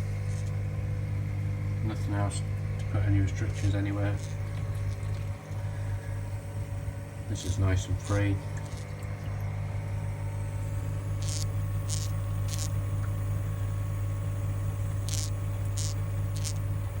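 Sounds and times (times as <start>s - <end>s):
pump humming: 0.0s - 17.0s.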